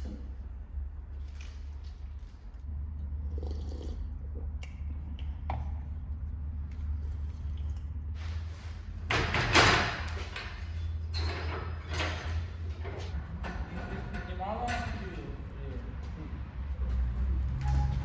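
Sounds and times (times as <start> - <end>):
scraping and knocking: 9.1 - 15.3.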